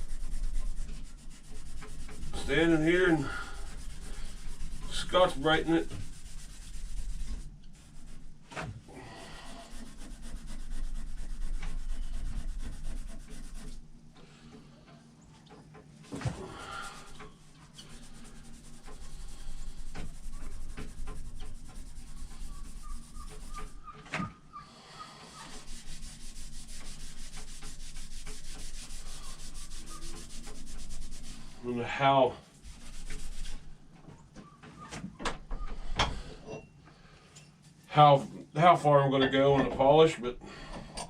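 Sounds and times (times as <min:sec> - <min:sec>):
abrasive pad scrubbing metal: 0:00.0 - 0:08.4, 0:09.0 - 0:13.8, 0:16.7 - 0:24.0, 0:24.8 - 0:31.8, 0:32.5 - 0:33.8.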